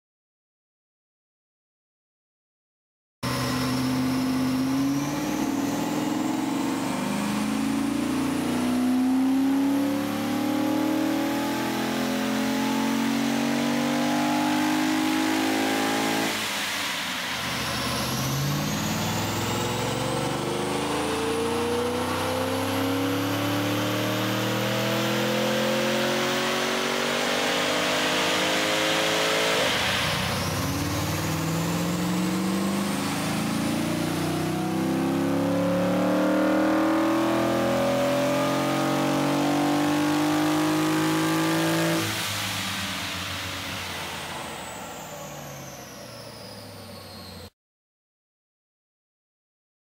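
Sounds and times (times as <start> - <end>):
loud engine induction noise: 14.9 - 47.5
car engine revving under load: 17.4 - 45.7.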